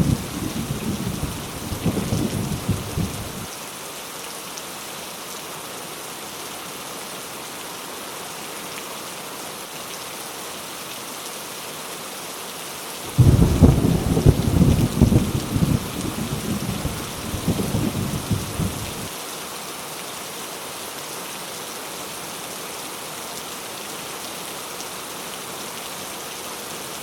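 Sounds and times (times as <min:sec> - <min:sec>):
thunder rumbling: 0:00.0 - 0:03.5, 0:13.1 - 0:19.1
heavy rain falling: 0:00.0 - 0:08.8, 0:12.8 - 0:27.0.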